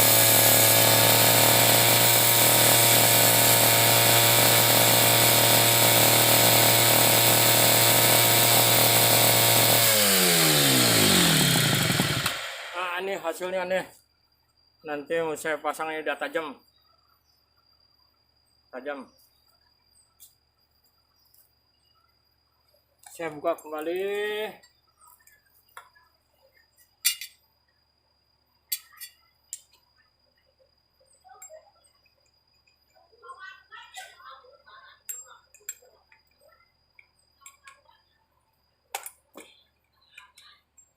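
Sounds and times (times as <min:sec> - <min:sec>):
angle grinder grinding metal blade: 0:00.0 - 0:12.8
metal tools clinking: 0:27.0 - 0:27.4.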